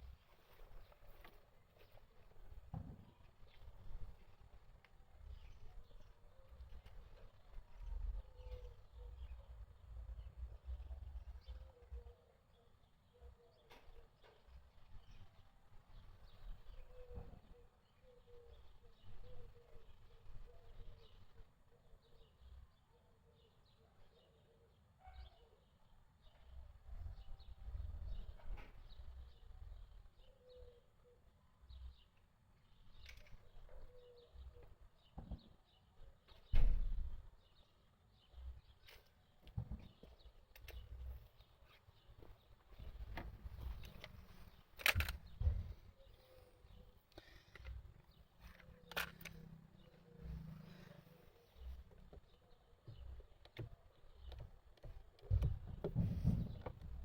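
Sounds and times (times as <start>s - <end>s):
bird chirps: 5.2s - 56.9s
sharp click: 44.8s - 45.5s.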